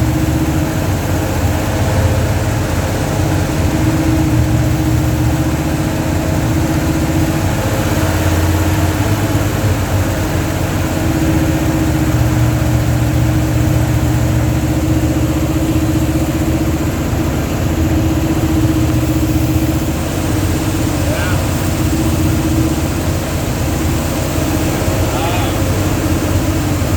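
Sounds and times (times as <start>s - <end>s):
engine idling: 0.0s - 26.9s.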